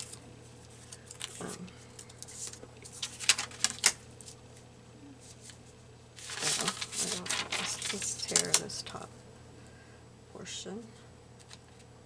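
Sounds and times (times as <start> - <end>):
paper rustling: 0.0 - 9.0.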